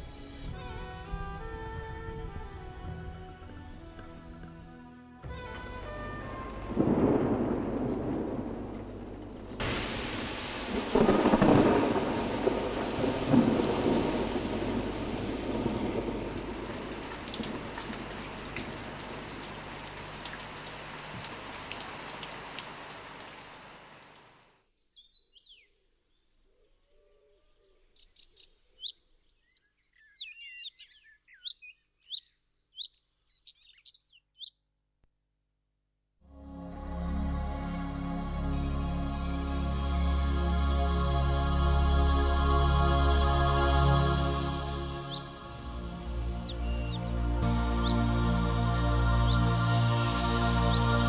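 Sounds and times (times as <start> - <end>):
thunder rumbling: 5.3 - 21.7, 43.0 - 51.0
heavy rain: 5.3 - 24.5, 36.4 - 51.0
bird chirps and calls: 28.0 - 34.6.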